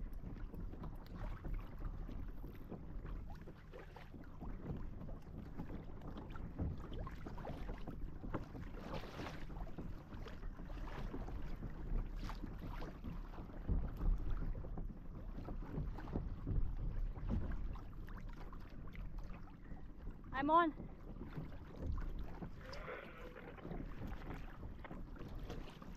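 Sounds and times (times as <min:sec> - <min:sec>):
small splashes and knocks: 0:00.0 - 0:25.9
water sloshing around a kayak: 0:00.0 - 0:25.9.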